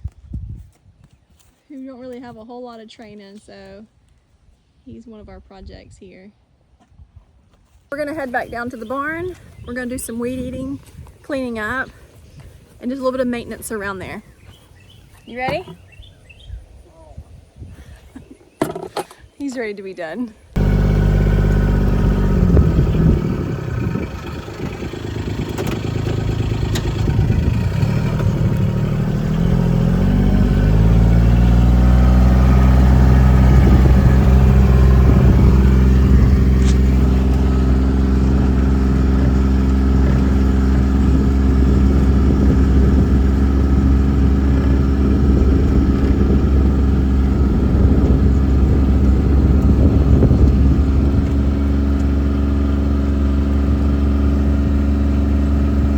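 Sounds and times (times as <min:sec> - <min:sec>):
vehicle engine pulling away: 0:20.6 - 0:55.9.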